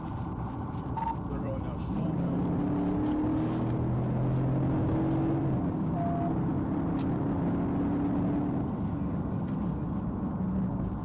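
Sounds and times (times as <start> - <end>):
car engine running: 0.0 - 11.0
road noise: 0.0 - 11.0.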